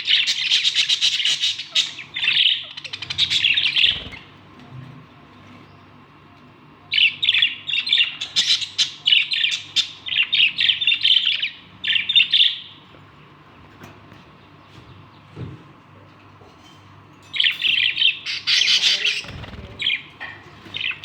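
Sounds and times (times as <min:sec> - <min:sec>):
budgerigar chattering: 0:18.2 - 0:20.1.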